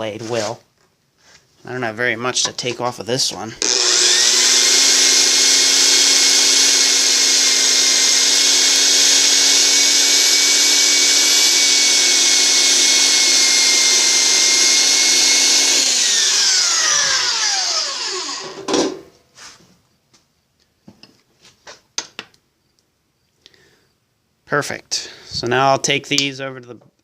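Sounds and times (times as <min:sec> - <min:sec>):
band saw cutting wood: 0:03.6 - 0:18.7
motor winding down whine: 0:03.6 - 0:18.7.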